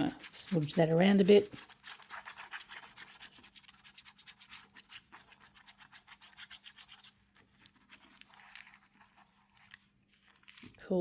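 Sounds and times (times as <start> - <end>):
faint rubbing strokes on tape: 0.0 - 10.8.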